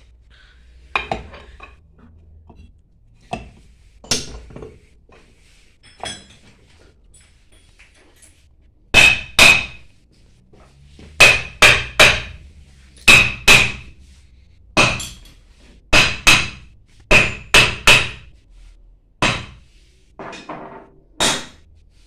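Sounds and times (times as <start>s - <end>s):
hammer striking metal: 8.9s - 9.9s, 11.2s - 12.4s, 13.1s - 13.9s, 14.8s - 15.3s, 15.9s - 18.3s, 19.2s - 19.6s, 21.2s - 21.6s.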